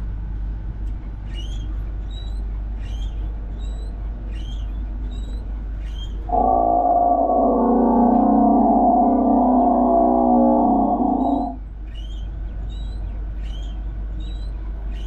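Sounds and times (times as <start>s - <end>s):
steady low hum: 4.9s - 11.9s
sustained gong-like tone: 6.3s - 11.6s.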